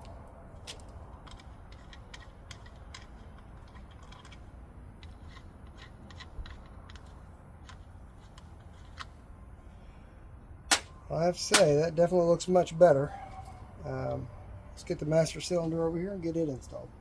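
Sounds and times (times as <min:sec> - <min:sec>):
hand tools clicking and tapping: 0:00.0 - 0:04.4, 0:05.0 - 0:09.1.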